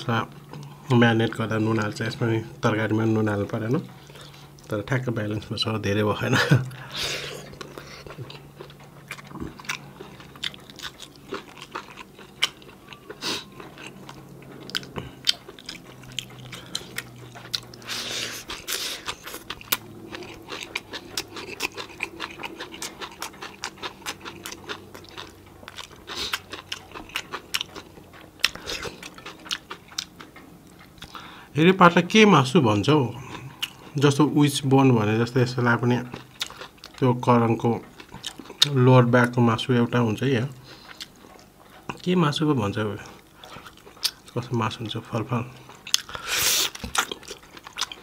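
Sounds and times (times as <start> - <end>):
wet chewing and lip smacks: 7.4 - 31.3, 36.0 - 39.4, 40.5 - 42.1, 43.0 - 44.5, 45.6 - 48.0.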